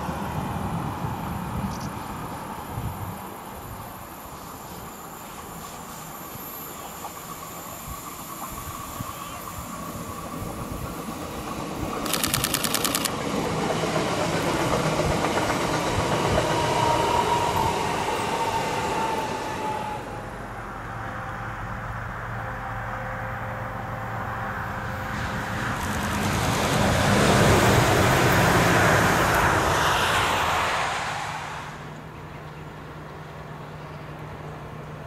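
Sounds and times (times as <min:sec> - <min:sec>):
train wheels clicking over rail joints: 0:10.4 - 0:18.4.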